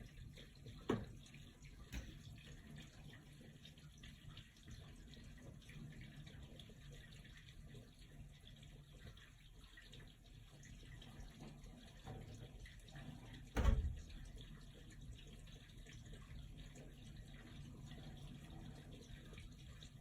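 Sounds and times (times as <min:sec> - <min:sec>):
water rushing through drain pipe: 0:00.0 - 0:20.0
loud low thump from pipe: 0:13.6 - 0:14.1.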